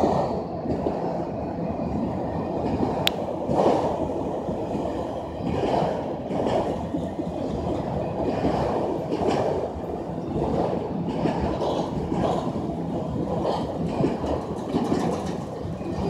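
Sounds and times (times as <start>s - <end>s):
train wheels rumbling on rails: 0.0s - 16.0s
clicks over rail joints: 13.4s - 16.0s.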